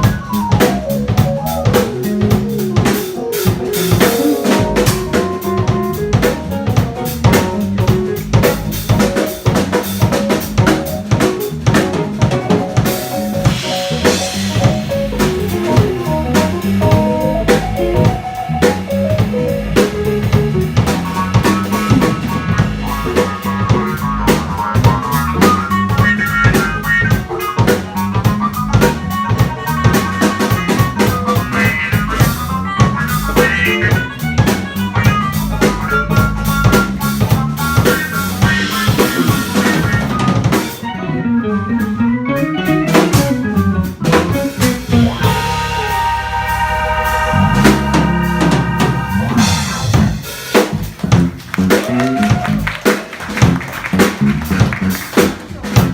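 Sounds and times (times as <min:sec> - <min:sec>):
drum kit rimshots and bass drum: 0:00.0 - 0:40.9, 0:41.8 - 0:55.9
jazz combo playing: 0:00.0 - 0:55.9
running bass line: 0:00.0 - 0:55.9
held chords ringing: 0:44.8 - 0:50.0.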